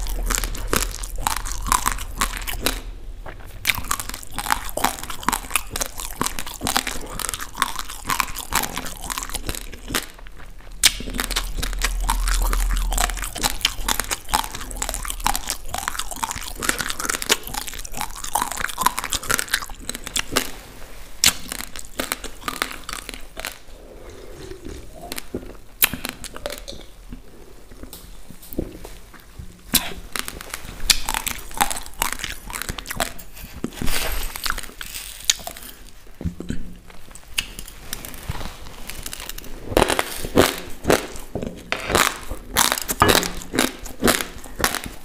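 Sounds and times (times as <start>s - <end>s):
low rumble: 0.0s - 19.4s, 22.4s - 27.9s
crunching dry rice grains: 0.0s - 26.7s.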